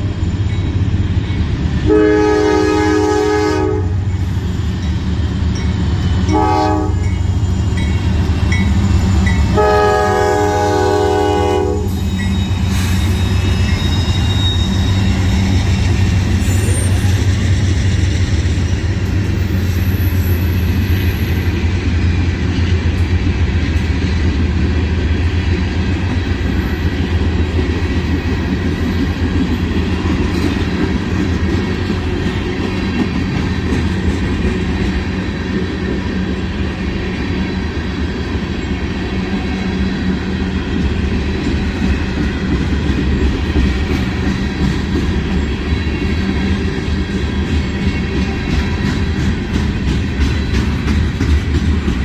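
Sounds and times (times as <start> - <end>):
train horn blast: 1.9 - 4.1, 6.3 - 7.2, 9.5 - 12.0.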